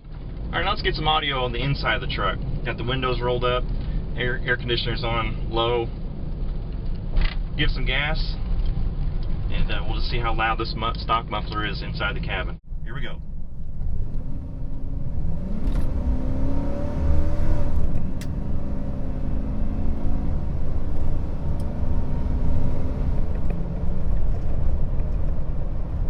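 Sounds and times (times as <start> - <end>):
truck engine accelerating: 13.0 - 26.0.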